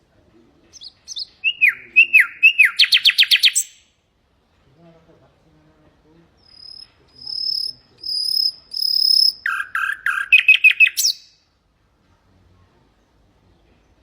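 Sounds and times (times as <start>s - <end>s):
nightingale singing: 0.6s - 4.0s, 6.4s - 11.6s.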